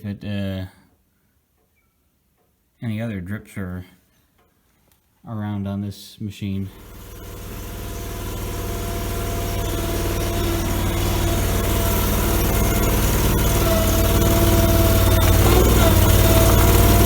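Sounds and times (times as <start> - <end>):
tractor engine running: 6.7 - 17.0.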